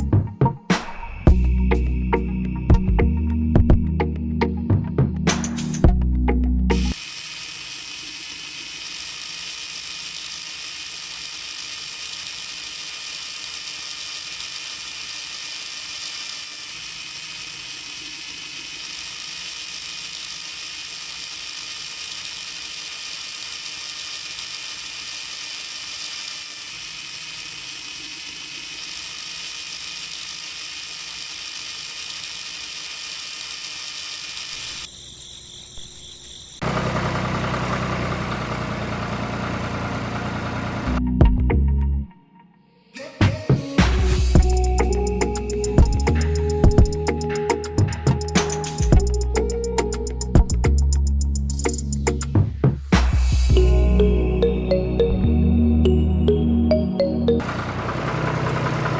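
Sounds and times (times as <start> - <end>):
small electric motor whirring: 6.9 - 36.7.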